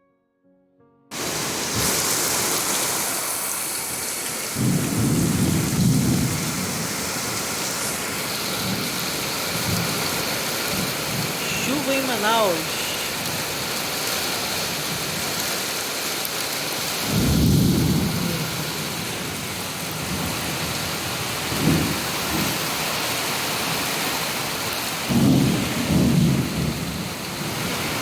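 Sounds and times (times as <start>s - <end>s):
heavy rain pouring: 1.1s - 28.0s
thunder rumbling: 4.4s - 12.3s, 17.0s - 24.4s, 25.0s - 28.0s.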